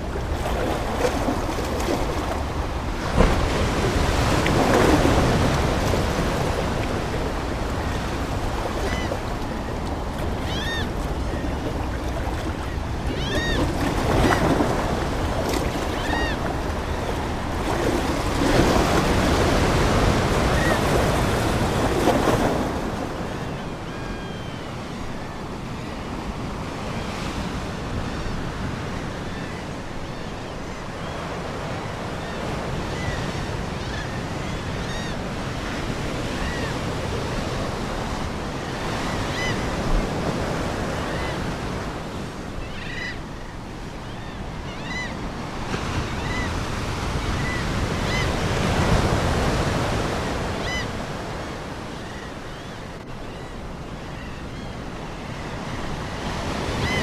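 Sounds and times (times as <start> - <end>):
seagulls calling: 0.0 - 25.9, 38.6 - 57.0
ocean waves breaking on shore: 0.0 - 57.0.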